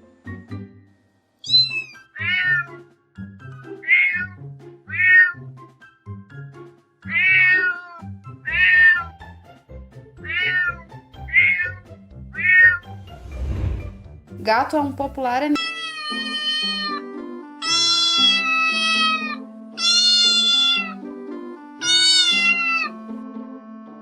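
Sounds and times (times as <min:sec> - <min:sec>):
background music: 0:00.0 - 0:24.0
cat meowing: 0:01.4 - 0:02.7, 0:03.8 - 0:05.4, 0:07.1 - 0:09.0, 0:10.2 - 0:11.8, 0:15.6 - 0:17.0, 0:17.6 - 0:21.0, 0:21.8 - 0:23.0.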